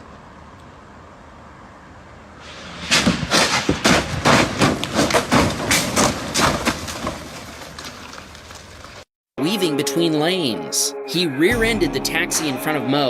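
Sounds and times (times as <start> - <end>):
car crash thuds and bangs: 2.8 - 7.7.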